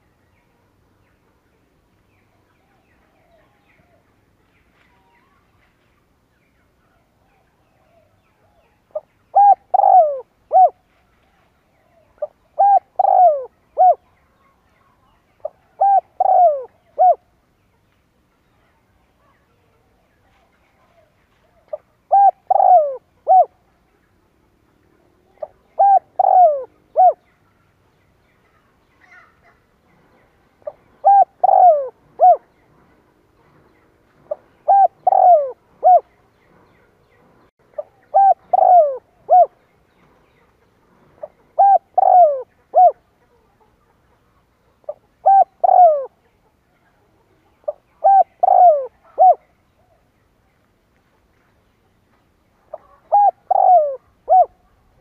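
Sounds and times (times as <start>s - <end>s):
dove cooing: 8.9s - 10.8s, 12.2s - 14.0s, 15.4s - 17.3s, 22.0s - 23.7s, 25.3s - 27.2s, 30.6s - 32.6s, 34.3s - 36.1s, 37.8s - 39.6s, 41.2s - 43.1s, 44.8s - 46.3s, 47.6s - 49.5s, 52.7s - 55.0s.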